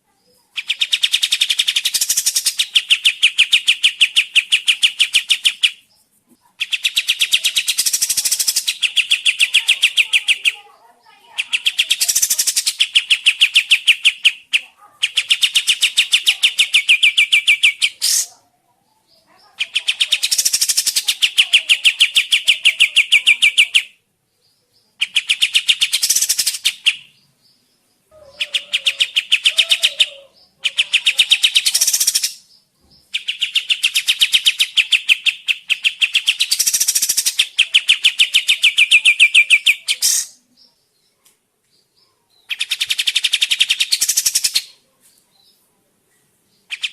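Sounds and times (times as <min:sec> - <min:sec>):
bird chattering trills: 0:00.3 - 0:18.4, 0:19.2 - 0:23.9, 0:25.0 - 0:27.1, 0:28.1 - 0:40.7, 0:42.5 - 0:44.8.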